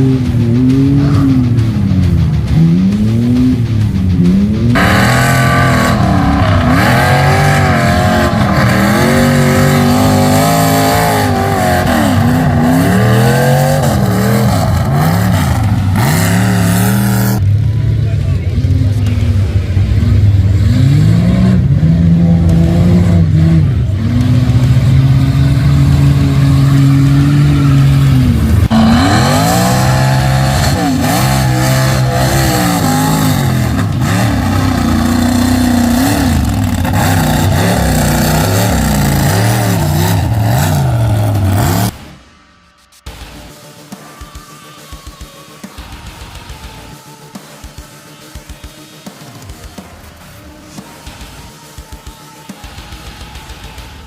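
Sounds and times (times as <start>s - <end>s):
truck engine revving: 0.0s - 42.1s.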